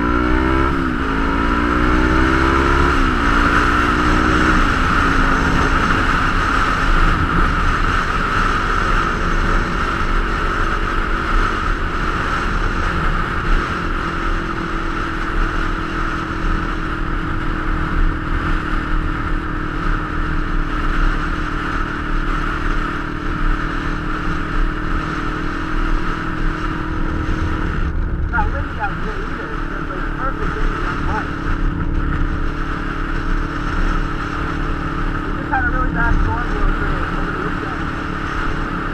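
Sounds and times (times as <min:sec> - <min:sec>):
motorcycle engine cruising: 0:00.0 - 0:38.9
wind rumble: 0:00.0 - 0:38.9.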